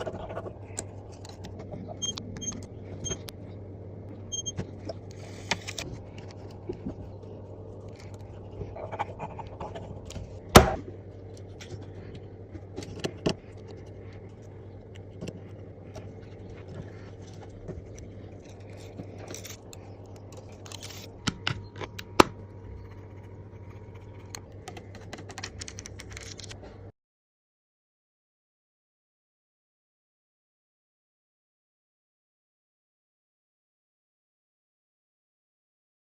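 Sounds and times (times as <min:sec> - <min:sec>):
low hum: 0:00.0 - 0:26.9
hand tools clicking and scraping: 0:11.6 - 0:21.1.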